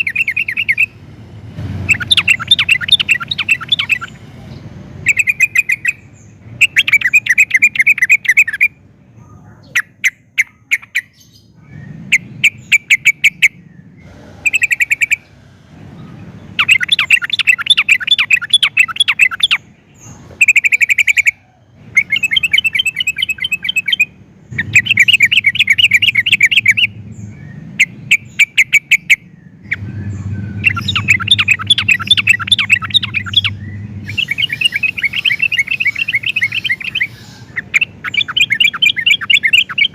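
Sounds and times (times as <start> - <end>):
bird singing bubbling notes: 0.0 - 1.0, 1.8 - 4.3, 5.0 - 8.8, 16.4 - 19.8, 20.4 - 39.9.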